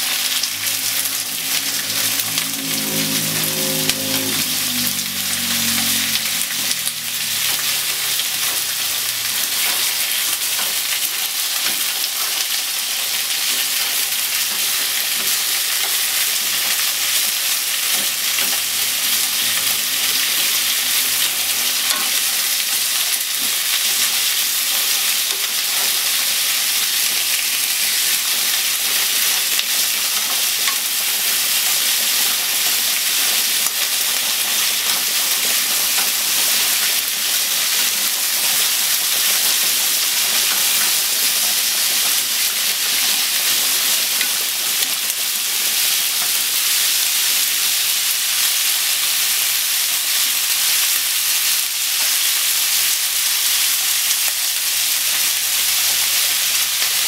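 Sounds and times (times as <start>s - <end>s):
onion and meat sizzling in a pan: 0.0s - 57.0s.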